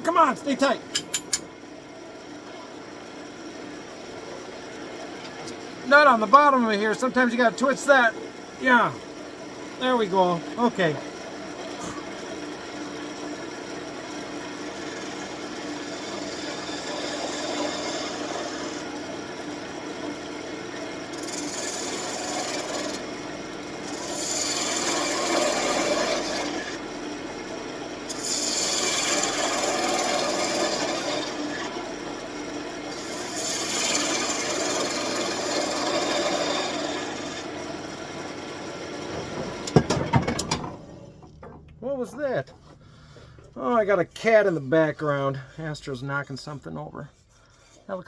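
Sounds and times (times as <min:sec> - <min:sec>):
wood lathe humming: 0:01.6 - 0:45.7
turning tool scraping wood: 0:14.5 - 0:19.1, 0:21.1 - 0:27.2, 0:28.0 - 0:48.0.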